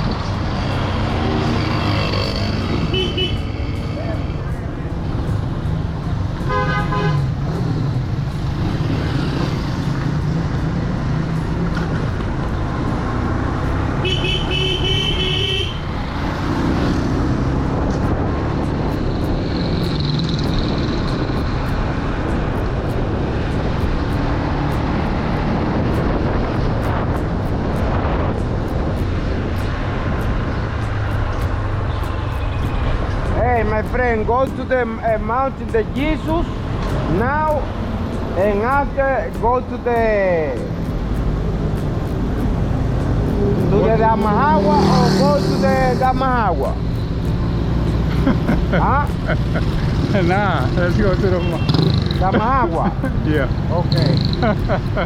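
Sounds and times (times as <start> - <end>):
motorbike running: 0.0 - 55.0
horn sounding: 2.0 - 4.3, 6.4 - 7.4, 13.9 - 16.0.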